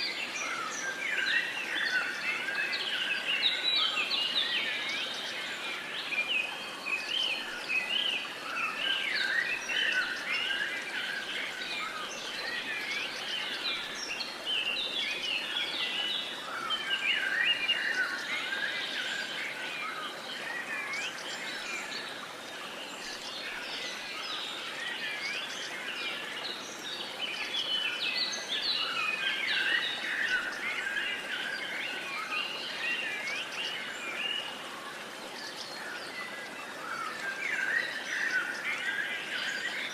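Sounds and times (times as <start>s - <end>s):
small birds chirping and singing: 22.9s - 34.6s.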